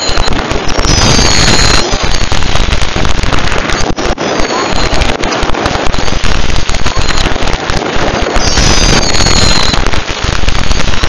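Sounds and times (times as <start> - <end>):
firework whistle gliding down: 0.0 - 2.2, 8.3 - 9.9
fireworks crackling and banging: 0.0 - 11.0.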